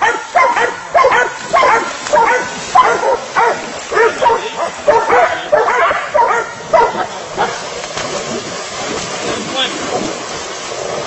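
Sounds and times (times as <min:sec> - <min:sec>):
dog barking: 0:00.0 - 0:07.6.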